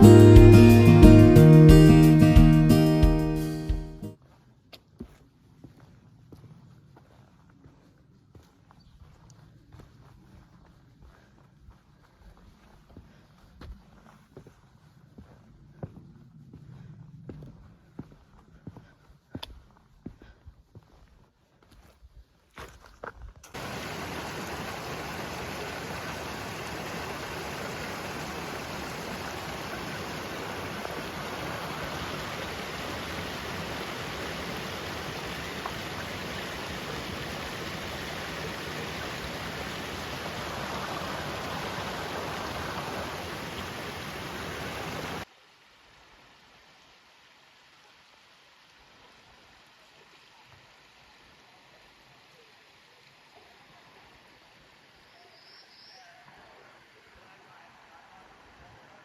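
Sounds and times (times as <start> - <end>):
rushing water: 0.0 - 4.2, 23.5 - 55.4, 56.0 - 59.0
faint outdoor background: 45.2 - 59.0.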